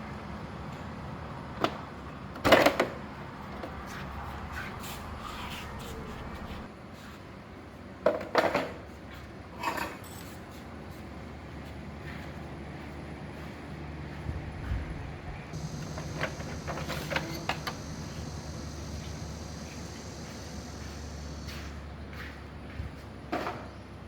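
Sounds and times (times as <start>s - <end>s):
steady low hum: 12.0s - 23.0s.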